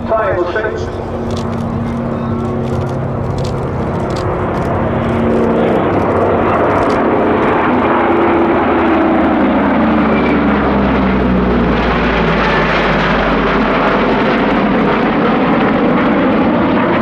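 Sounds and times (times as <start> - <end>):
propeller plane engines droning: 0.0 - 17.0.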